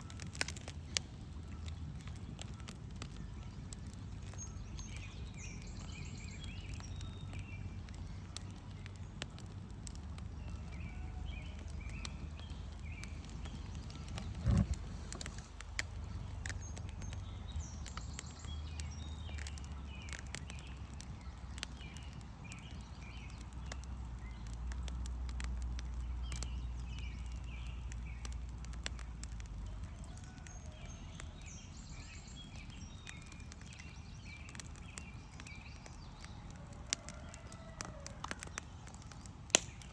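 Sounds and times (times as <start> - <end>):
campfire crackling and popping: 0.0 - 39.9
small birds chirping: 0.0 - 39.9
steady low rumble: 8.8 - 17.8.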